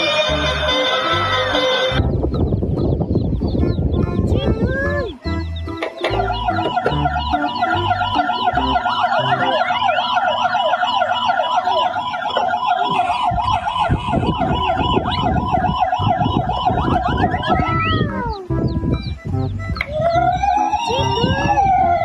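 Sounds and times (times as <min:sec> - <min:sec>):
emergency siren wailing: 0:00.0 - 0:02.0, 0:06.0 - 0:18.7, 0:19.7 - 0:22.0.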